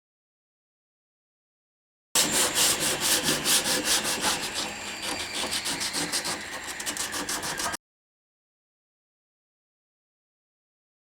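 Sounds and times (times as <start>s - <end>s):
hand tool stroking wood: 2.2s - 7.8s.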